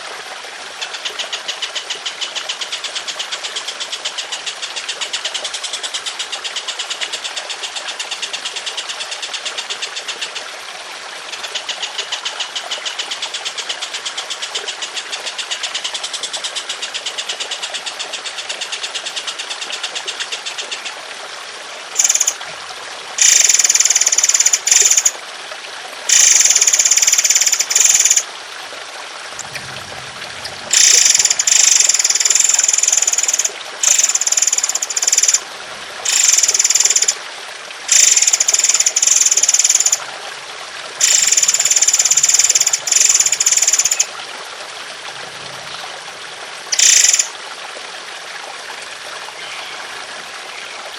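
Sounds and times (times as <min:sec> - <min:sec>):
water trickling: 0:00.0 - 0:50.9
bird high trill: 0:22.0 - 0:22.4, 0:23.2 - 0:25.1, 0:26.1 - 0:28.2, 0:29.4 - 0:35.4, 0:36.1 - 0:37.2, 0:37.9 - 0:40.0, 0:41.0 - 0:44.1, 0:46.8 - 0:47.3
harsh rasping bird calls: 0:29.4 - 0:35.4.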